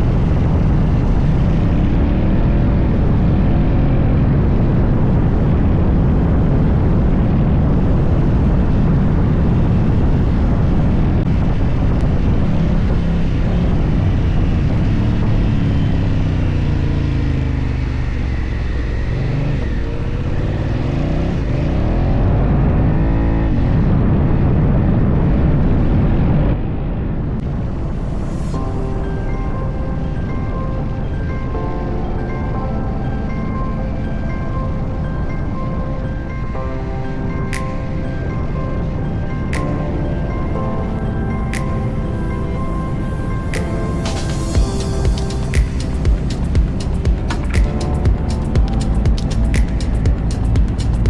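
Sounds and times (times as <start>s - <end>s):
wind noise on microphone: 0.0s - 51.0s
motorcycle engine running: 44.6s - 51.0s.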